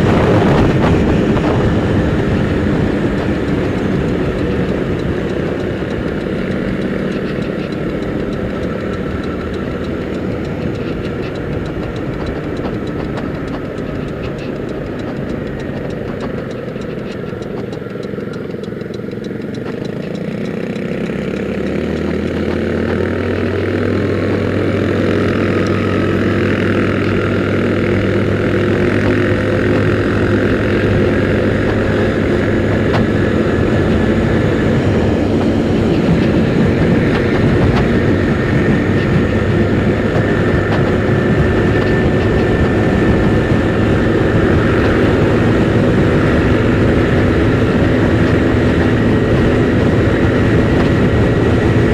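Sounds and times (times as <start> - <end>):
motor scooter engine running: 0.0 - 51.9
road and wind noise: 0.0 - 51.9.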